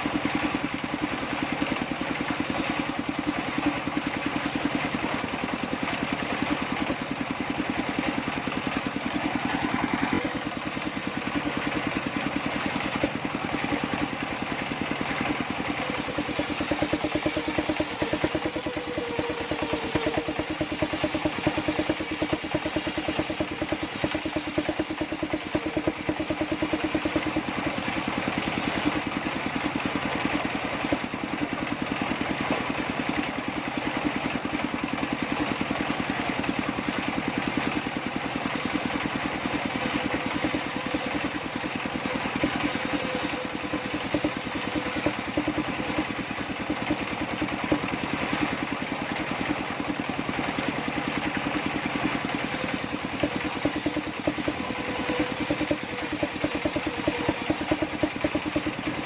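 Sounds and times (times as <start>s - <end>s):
engine-driven table saw cutting wood: 0.0s - 59.0s.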